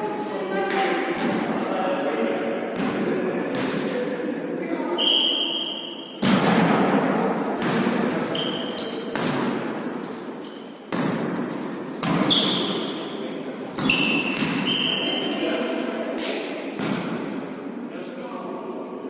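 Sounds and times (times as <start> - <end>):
ball thuds ringing in a hall: 0.5 - 17.7
shoes squeaking on court floor: 8.2 - 9.2, 10.4 - 15.4.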